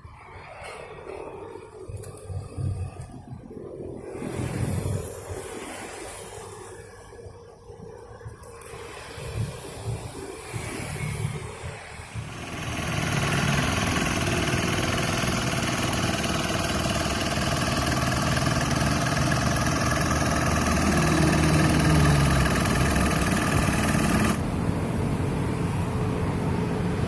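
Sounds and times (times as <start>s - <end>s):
brush cutter engine running: 12.1s - 24.6s.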